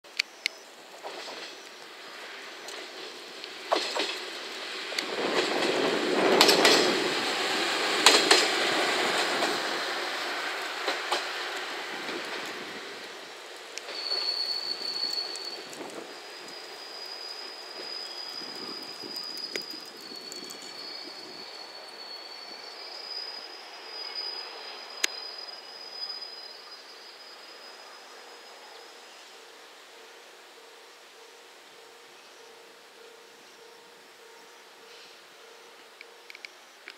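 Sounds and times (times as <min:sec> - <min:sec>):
wheels clicking over rail joints: 0:00.1 - 0:01.9, 0:02.5 - 0:22.0
railcar rolling past: 0:00.1 - 0:36.9
high-pitched squeal: 0:06.5 - 0:29.4.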